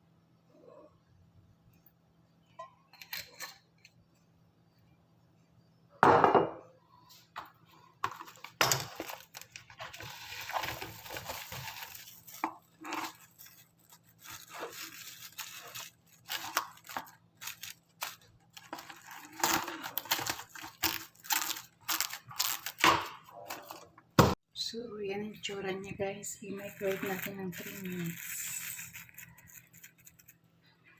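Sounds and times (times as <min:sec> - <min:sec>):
packaging rustling and tearing: 0:08.0 - 0:23.8, 0:26.6 - 0:30.4.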